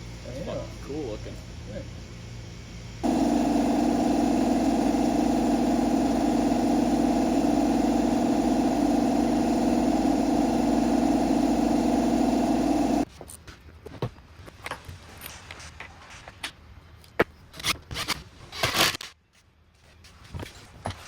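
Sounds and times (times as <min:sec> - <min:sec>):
loud machine drone: 0:03.0 - 0:13.0.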